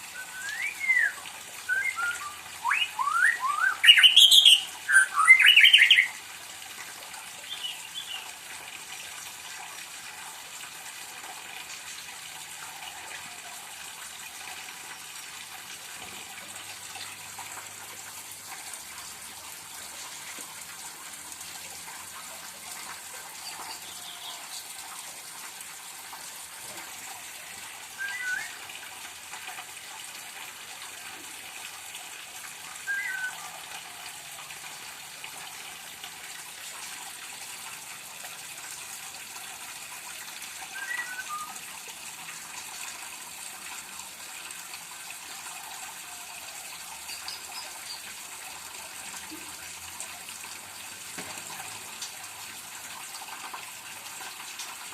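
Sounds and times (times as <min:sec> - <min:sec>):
bird whistled call: 0:00.1 - 0:06.2, 0:28.0 - 0:28.6, 0:32.8 - 0:33.6, 0:40.7 - 0:41.6.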